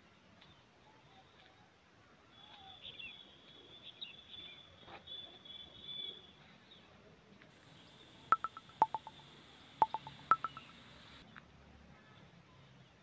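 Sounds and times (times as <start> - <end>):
small birds twittering: 7.6 - 11.3
sharp ringing clinks: 8.4 - 9.2, 9.8 - 10.7.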